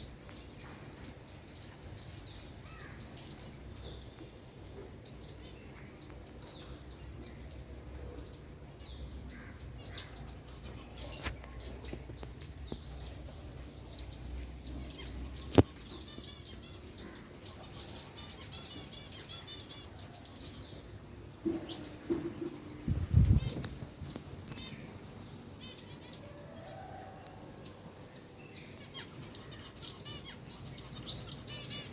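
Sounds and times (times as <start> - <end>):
small birds chirping: 0.0 - 31.9
low wind rumble: 22.6 - 24.1.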